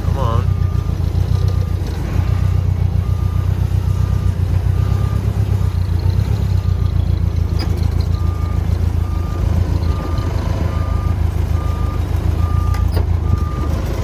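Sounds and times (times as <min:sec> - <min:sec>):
backup alarm beeping: 0:00.0 - 0:05.8
forklift engine running: 0:00.0 - 0:14.0.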